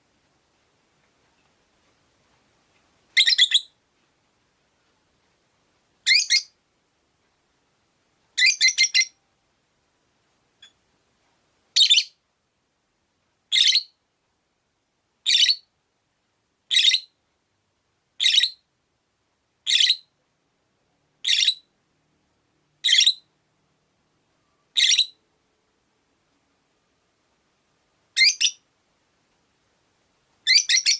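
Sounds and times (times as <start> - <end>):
lovebird high-pitched calls: 3.2 - 3.8, 6.0 - 6.6, 8.4 - 9.2, 11.8 - 12.2, 13.5 - 14.0, 15.2 - 15.7, 16.7 - 17.2, 18.2 - 18.7, 19.6 - 20.1, 21.2 - 21.7, 22.8 - 23.3, 24.7 - 25.2, 28.2 - 28.6, 30.4 - 30.9.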